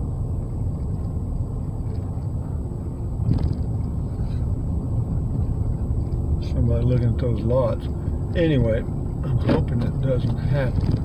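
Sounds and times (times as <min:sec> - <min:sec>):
road and engine rumble in cab: 0:00.0 - 0:11.0.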